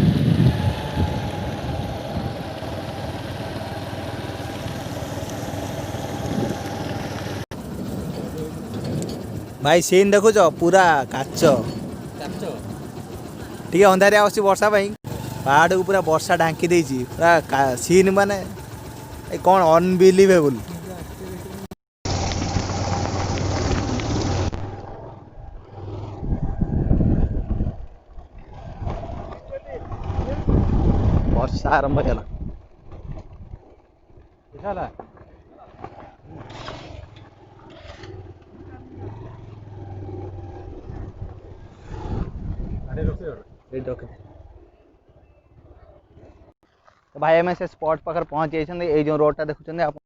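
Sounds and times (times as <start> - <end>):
wind buffeting microphone: 0.0 - 14.0, 25.2 - 35.4, 39.0 - 46.5
vehicle engine running: 0.0 - 31.4, 34.6 - 42.8.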